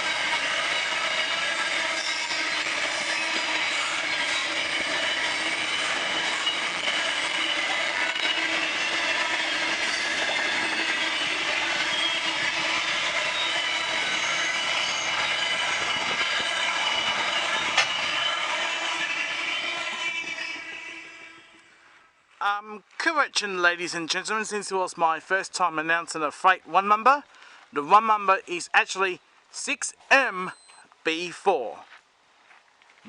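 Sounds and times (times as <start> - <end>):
train wagons rolling: 0.0 - 21.6
wheels squealing: 0.0 - 21.8.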